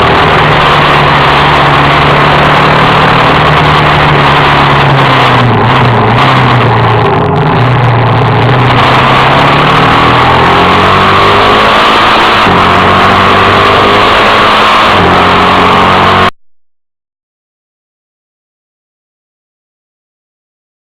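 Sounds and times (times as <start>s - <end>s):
motorcycle engine accelerating: 0.0s - 16.4s.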